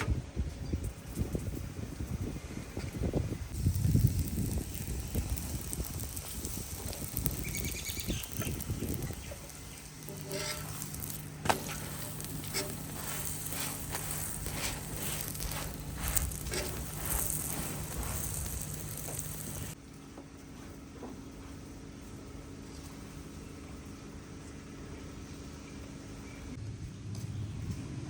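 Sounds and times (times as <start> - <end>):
food sizzling in hot oil: 3.5 - 19.8.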